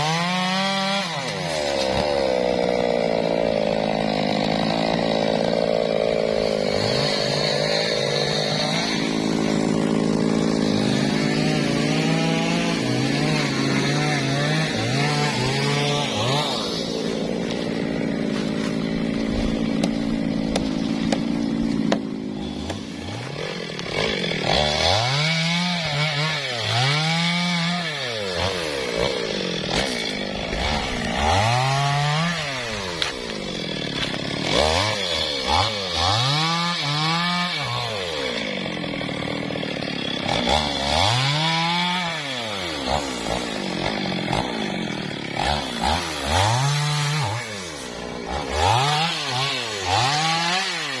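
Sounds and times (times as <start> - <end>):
two-stroke chainsaw revving: 0.0 - 51.0.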